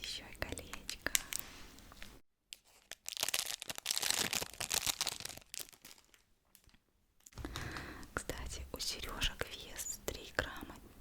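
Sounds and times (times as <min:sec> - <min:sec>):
packaging crinkling and rustling: 0:00.6 - 0:07.4.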